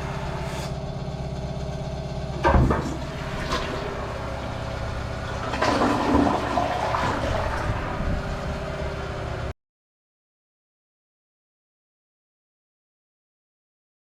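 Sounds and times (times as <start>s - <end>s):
low motor hum: 0.0s - 9.6s
toilet flushing: 2.2s - 9.5s.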